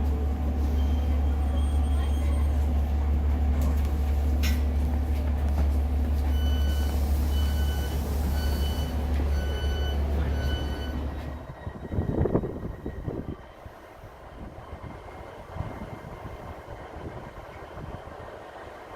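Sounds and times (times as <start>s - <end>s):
train diesel engine hum: 0.0s - 18.9s
door warning beeps: 6.3s - 11.0s.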